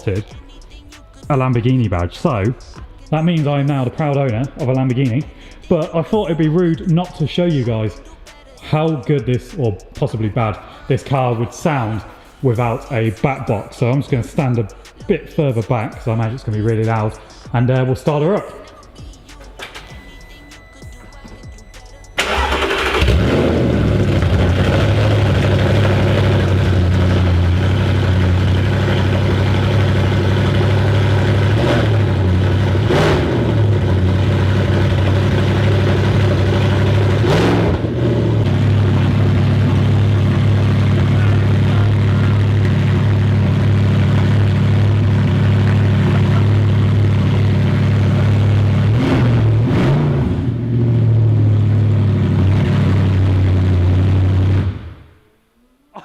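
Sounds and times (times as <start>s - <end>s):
car engine starting and idling: 0.0s - 55.2s
engine revving: 22.2s - 55.1s.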